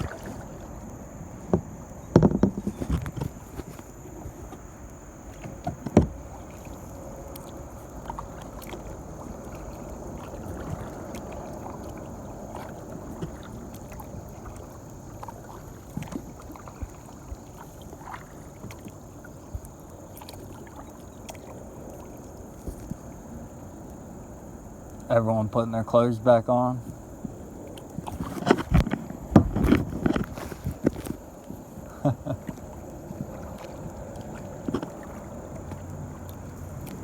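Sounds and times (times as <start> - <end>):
water around boat: 0.0 - 37.0
knocks on boat hull: 1.5 - 3.7, 5.4 - 6.3, 28.4 - 30.9.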